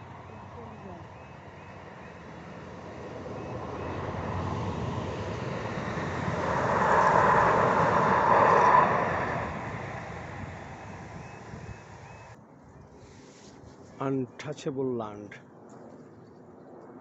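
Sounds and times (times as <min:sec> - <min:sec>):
vehicle passing by: 0:01.8 - 0:12.4.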